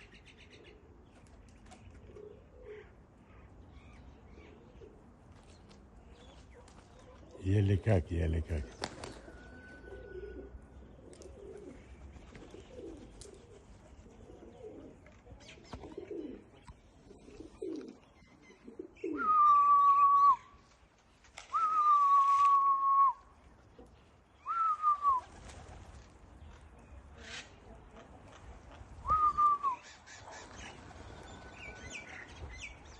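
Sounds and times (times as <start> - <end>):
pigeons cooing: 1.8 - 3.0, 3.9 - 5.2, 8.6 - 20.4, 29.0 - 32.9.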